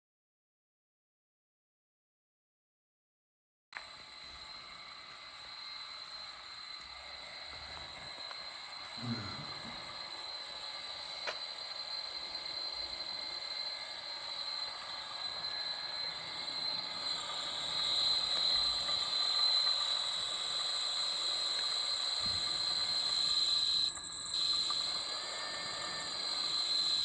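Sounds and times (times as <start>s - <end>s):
electric drive whine: 3.8s - 27.0s.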